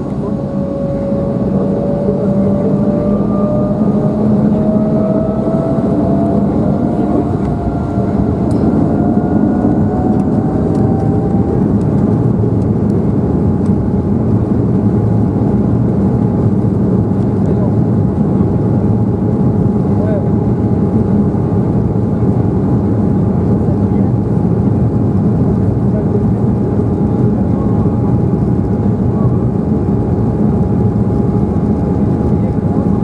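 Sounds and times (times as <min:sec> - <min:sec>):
jet engines spooling up: 0:00.0 - 0:14.2.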